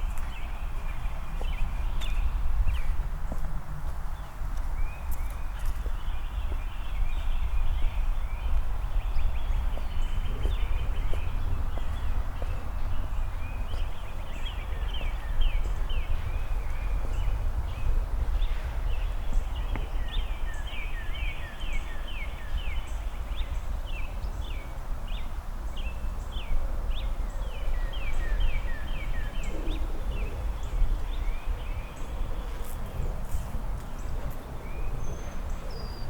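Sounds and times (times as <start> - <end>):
songbirds chirping: 0.0 - 36.0
footsteps: 2.8 - 6.0.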